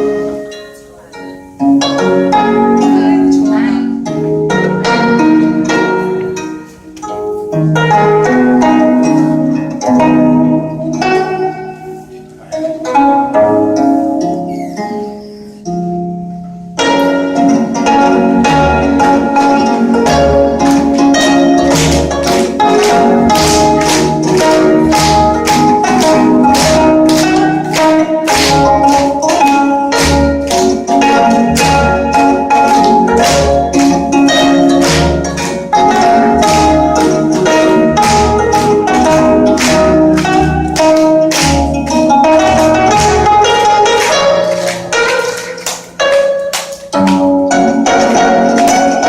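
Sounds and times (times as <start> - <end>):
plucked zither melody: 0.0 - 49.0
low beat: 17.0 - 49.0.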